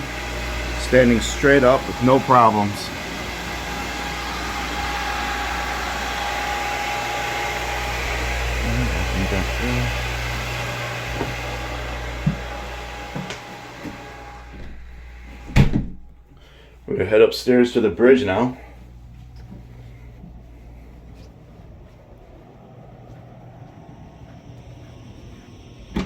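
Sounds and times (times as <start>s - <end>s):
engine room machinery hum: 0.0s - 26.0s
loud thump: 15.5s - 16.1s.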